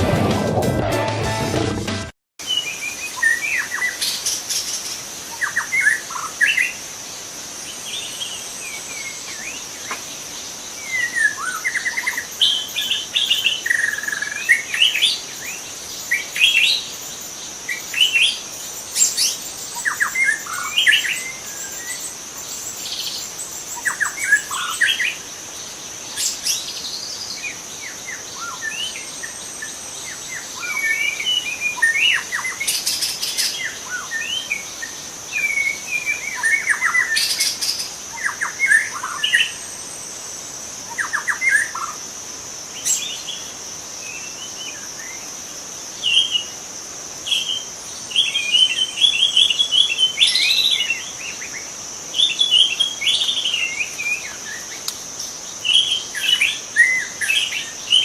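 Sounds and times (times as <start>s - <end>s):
high-pitched drone: 0.0s - 2.1s.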